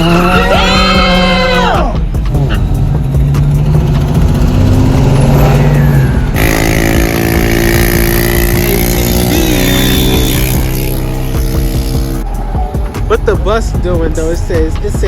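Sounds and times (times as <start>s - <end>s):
car engines passing: 2.2s - 13.0s.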